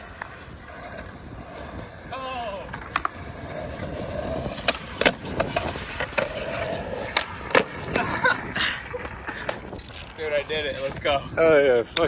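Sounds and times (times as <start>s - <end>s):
skateboard rolling on concrete: 0.0s - 12.0s
skateboard clacks popping and landing: 2.6s - 10.2s.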